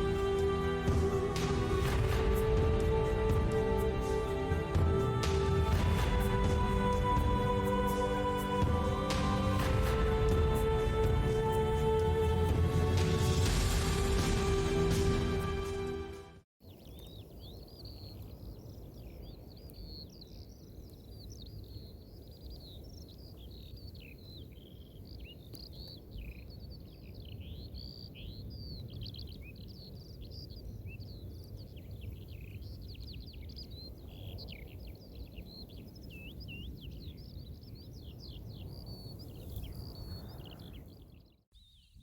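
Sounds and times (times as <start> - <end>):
small birds chirping and trilling: 16.6 - 42.0
wind rumble on microphone: 16.8 - 42.0.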